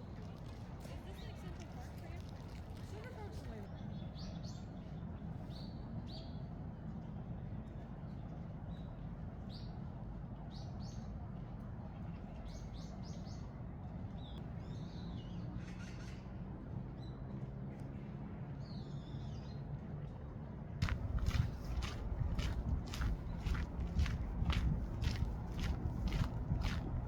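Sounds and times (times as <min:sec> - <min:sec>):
small birds chirping: 0:20.8 - 0:26.9
low background rumble: 0:20.8 - 0:27.0.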